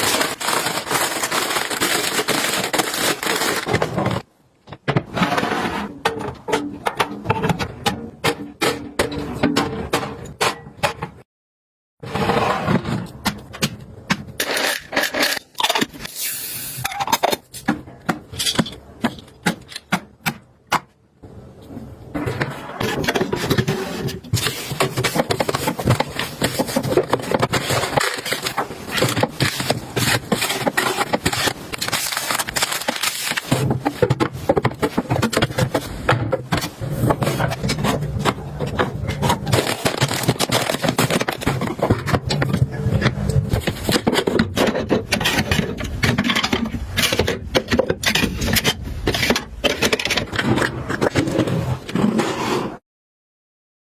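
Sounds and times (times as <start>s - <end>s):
packaging rustling and scraping: 0.0s - 4.3s, 22.6s - 52.8s.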